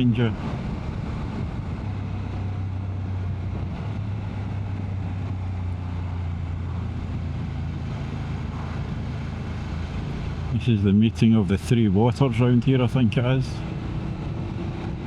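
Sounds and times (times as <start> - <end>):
wind noise on microphone: 0.0 - 10.6, 13.6 - 15.0
motorcycle engine cruising: 0.0 - 15.0.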